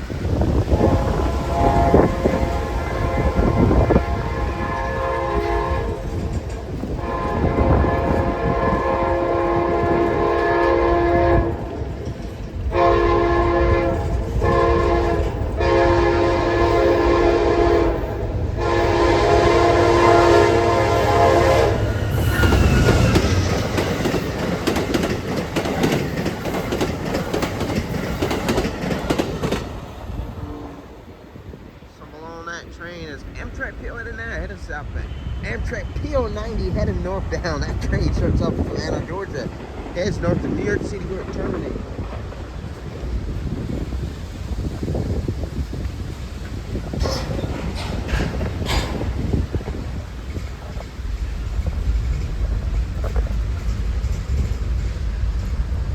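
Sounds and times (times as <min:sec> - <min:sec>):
wheels clacking over rail joints: 0:00.0 - 0:21.3, 0:21.9 - 0:30.3, 0:41.8 - 0:55.9
train rushing past: 0:00.0 - 0:55.9
train horn blasts: 0:00.6 - 0:12.0, 0:12.7 - 0:23.5, 0:35.0 - 0:35.6.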